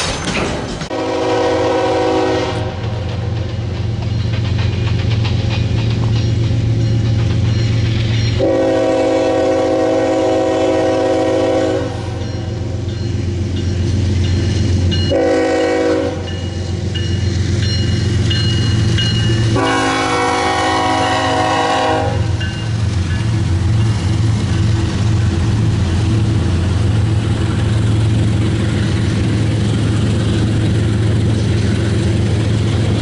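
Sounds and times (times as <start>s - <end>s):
passing train rumble: 0.0s - 33.0s
locomotive air horn blasts: 0.9s - 2.9s, 8.4s - 12.2s, 15.1s - 16.3s, 19.5s - 22.4s.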